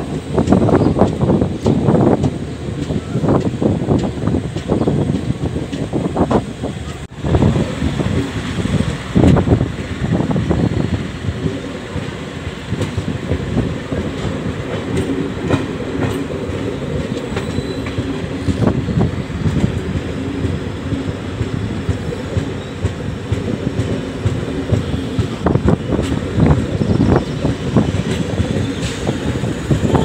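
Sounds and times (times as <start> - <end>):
wheels clicking over rail joints: 0.0 - 7.1
train wheels rumbling on rail: 0.0 - 30.0.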